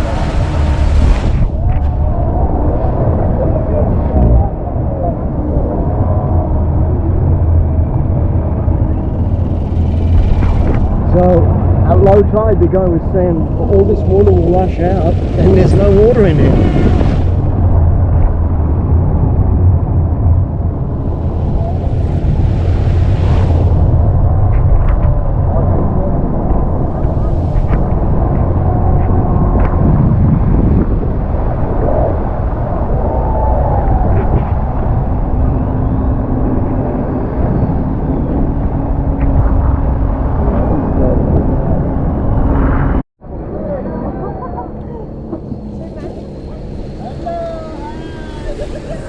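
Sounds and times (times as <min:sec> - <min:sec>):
rushing water noise: 0:00.0 - 0:01.6, 0:13.4 - 0:17.6, 0:20.8 - 0:24.4
speedboat engine droning: 0:00.0 - 0:29.6, 0:34.6 - 0:49.0
rushing noise: 0:00.0 - 0:43.8, 0:45.0 - 0:49.0
steady hum: 0:06.1 - 0:33.0
speedboat engines running: 0:06.7 - 0:17.7, 0:20.1 - 0:24.3, 0:43.6 - 0:49.0.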